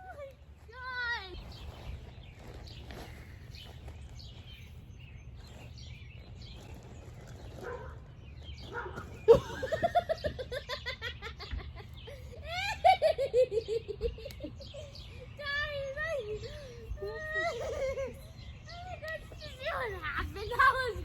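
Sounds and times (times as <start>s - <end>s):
person laughing hard: 9.3s - 14.8s.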